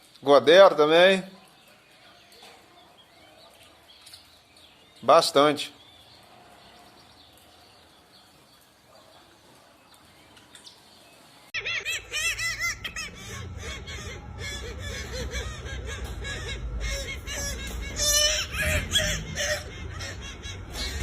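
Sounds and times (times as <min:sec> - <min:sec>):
loud bird calls: 0:11.1 - 0:21.0
low rumbling noise: 0:11.8 - 0:21.0.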